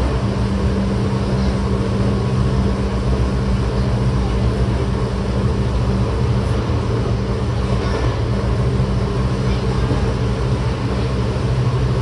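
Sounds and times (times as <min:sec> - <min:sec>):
steady low tones: 0:00.0 - 0:12.0
train wheels rumbling on rail: 0:00.0 - 0:12.0.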